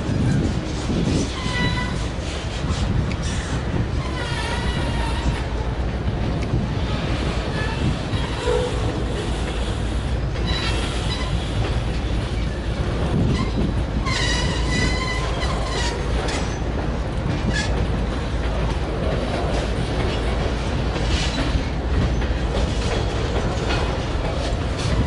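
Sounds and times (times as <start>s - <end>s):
freight train wheels rumbling: 0.0s - 25.0s
high-pitched wheel squeals: 13.3s - 16.6s.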